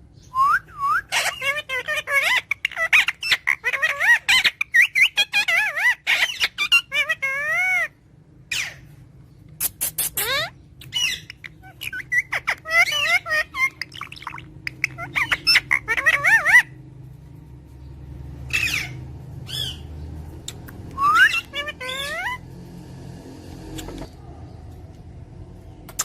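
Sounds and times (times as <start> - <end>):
parrot squawking and whistling: 0.4 - 8.8, 9.6 - 16.8, 18.5 - 19.9, 20.5 - 22.4.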